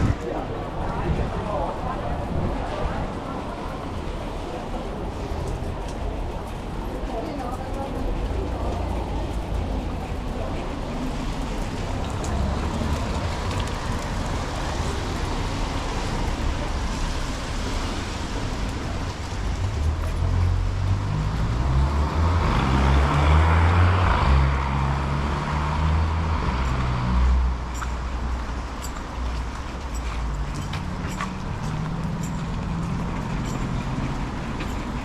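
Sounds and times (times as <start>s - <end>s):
road traffic noise: 0.0s - 35.0s
vehicle passing close by: 10.9s - 27.7s.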